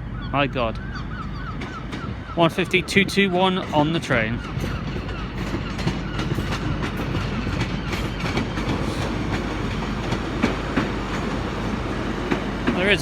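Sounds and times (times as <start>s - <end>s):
low diesel train rumble: 0.0s - 13.0s
wheels clicking on rails: 1.5s - 13.0s.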